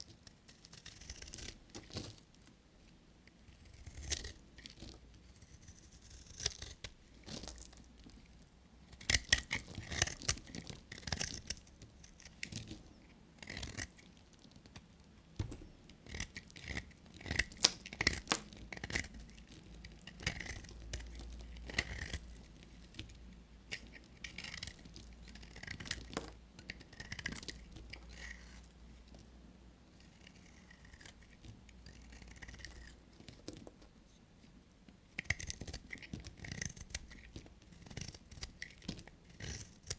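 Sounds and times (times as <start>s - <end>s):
blade cutting dry soap: 3.5s - 7.8s, 8.9s - 12.7s, 15.6s - 22.3s, 35.2s - 39.9s.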